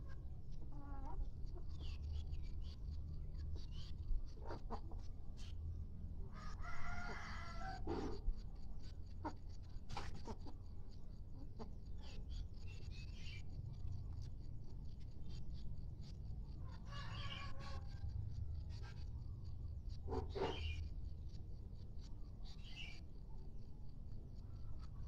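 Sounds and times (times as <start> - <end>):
faint chicken calls: 0.0 - 21.4
rooster crowing: 6.3 - 8.1, 16.8 - 18.2
steady low hum: 7.3 - 16.9, 17.7 - 25.0.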